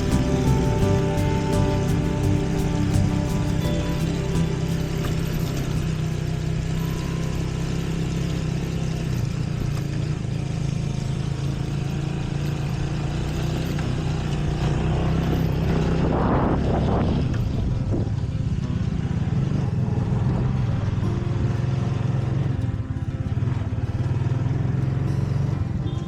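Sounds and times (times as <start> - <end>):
rushing noise: 0.0 - 8.2
motorcycle engine running: 0.0 - 26.0.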